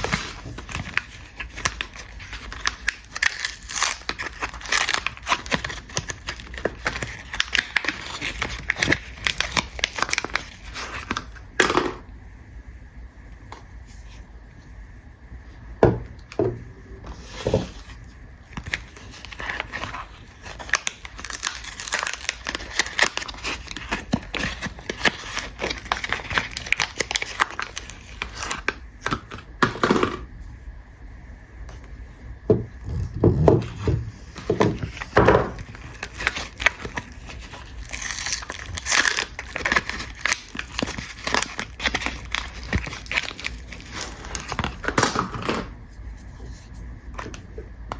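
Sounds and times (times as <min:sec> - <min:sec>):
wrapper tearing: 0:00.0 - 0:11.4, 0:18.5 - 0:29.3, 0:33.6 - 0:45.7
wrapper crinkling and rustling: 0:00.0 - 0:11.5, 0:17.1 - 0:30.2, 0:32.9 - 0:45.8.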